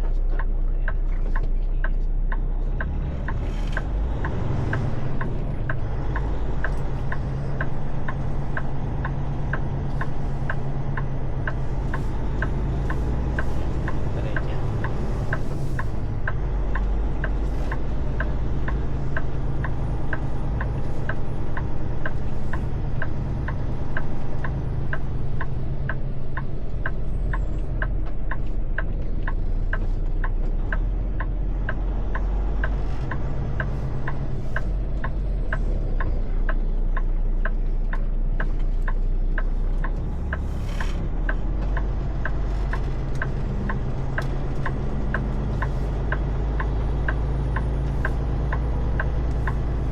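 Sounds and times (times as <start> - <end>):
truck engine idling: 0.0 - 49.9
sharp regular clicking: 24.0 - 49.9.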